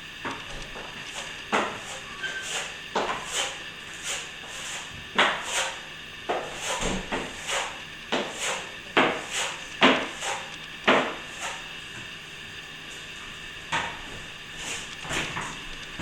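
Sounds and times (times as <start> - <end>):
trowel scraping plaster: 1.1 - 11.7.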